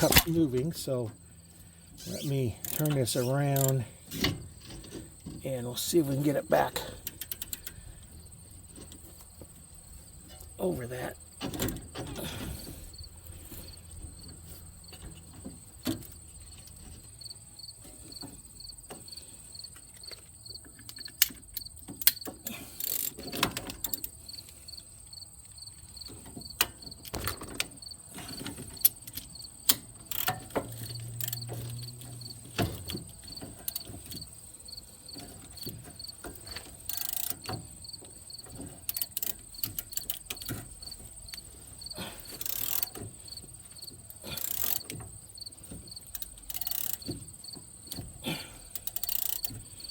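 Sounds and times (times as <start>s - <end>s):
crickets chirping: 0.1s - 49.9s
metal parts clicking and knocking: 2.1s - 5.1s, 26.6s - 34.3s, 35.1s - 37.7s, 38.4s - 41.4s, 42.2s - 43.1s, 44.2s - 45.1s, 45.7s - 48.1s, 48.7s - 49.9s.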